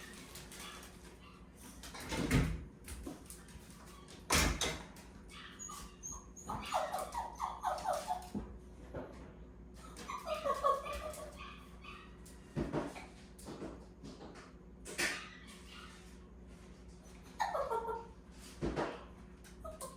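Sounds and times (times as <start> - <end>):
dog whining: 5.3 - 8.4, 9.8 - 12.2, 17.1 - 18.2, 19.6 - 19.9.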